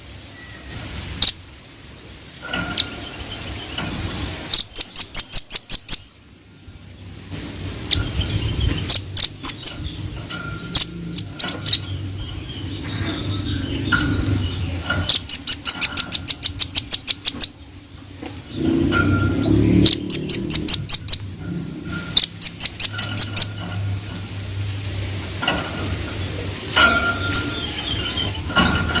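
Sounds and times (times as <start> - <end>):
low hum and hiss: 0.0 - 29.0
bird calling in high piping notes: 4.5 - 6.1.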